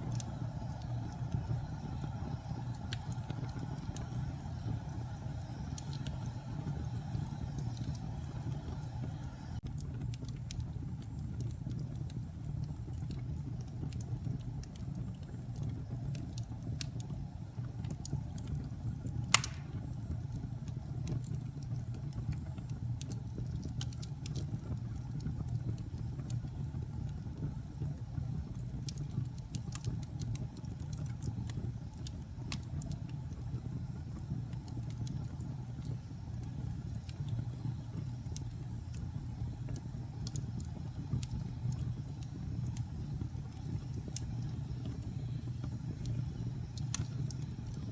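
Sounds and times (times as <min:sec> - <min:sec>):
fire crackles: 0:00.0 - 0:47.9
wood fire burning: 0:00.0 - 0:47.9
loud pop from fire: 0:19.3 - 0:20.0.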